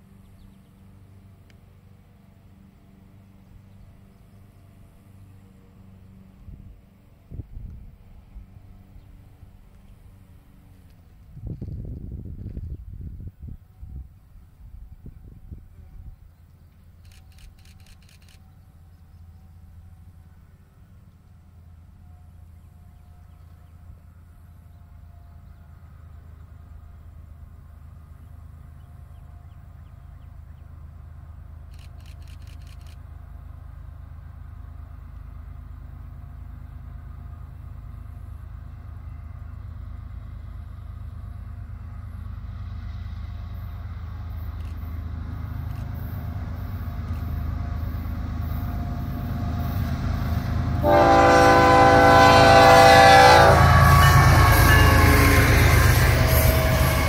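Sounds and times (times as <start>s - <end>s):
locomotive engine rumble: 0.0s - 57.0s
train air horn blast: 50.7s - 57.0s.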